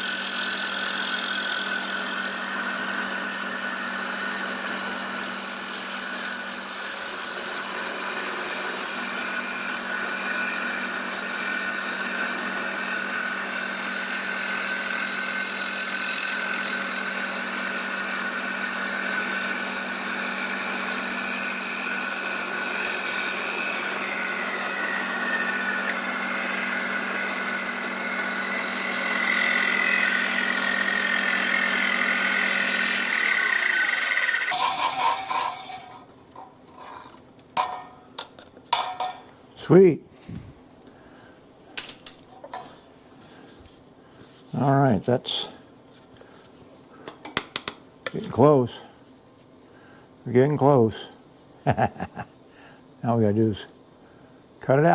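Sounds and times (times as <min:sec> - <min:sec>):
power tool motor humming: 0:00.0 - 0:36.0
power tool winding down: 0:00.0 - 0:36.0.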